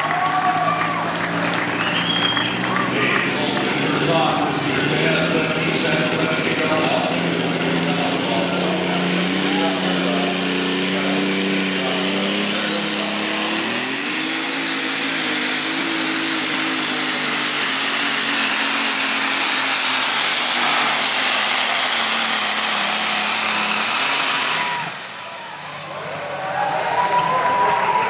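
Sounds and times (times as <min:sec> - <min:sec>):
diesel engine under full load: 0:00.0 - 0:28.0
turbo whine: 0:03.4 - 0:27.0.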